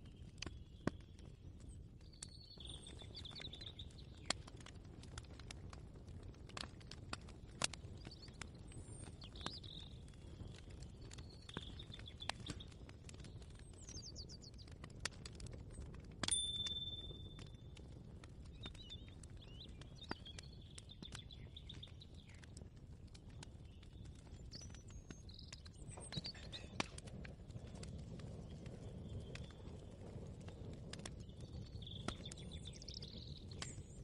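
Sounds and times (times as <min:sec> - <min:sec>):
birds chirping faintly: 0:00.0 - 0:04.7, 0:07.6 - 0:14.8, 0:15.8 - 0:34.0.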